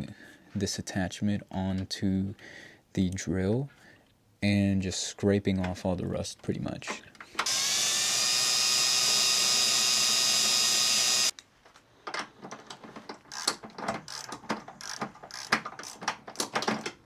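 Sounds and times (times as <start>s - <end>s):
electric drill scraping rust: 7.4s - 11.3s.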